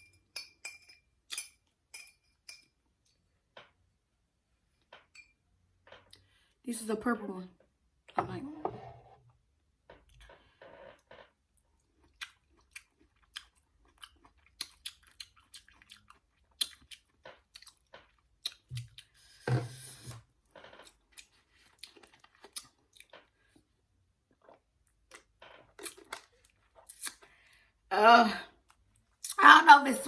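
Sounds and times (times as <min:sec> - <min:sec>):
mouth chewing and smacking: 0:11.8 - 0:19.2, 0:20.8 - 0:23.5, 0:24.3 - 0:27.5.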